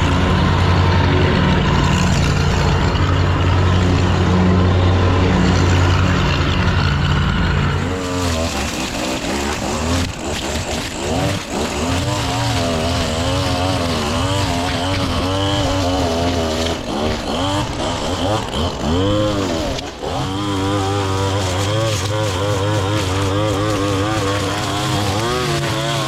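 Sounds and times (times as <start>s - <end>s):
small gasoline engine revving: 0.0s - 26.0s.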